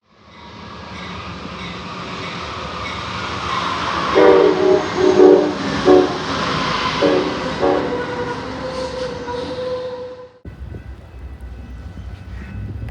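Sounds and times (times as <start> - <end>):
train rumbling: 0.1 - 12.9
locomotive horn blasts: 4.1 - 12.9.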